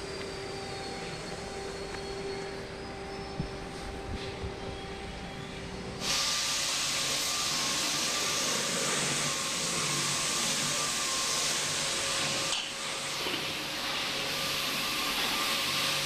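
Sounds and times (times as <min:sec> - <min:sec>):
workshop machine hum: 0:00.0 - 0:16.0
compressed air hissing: 0:05.6 - 0:16.0.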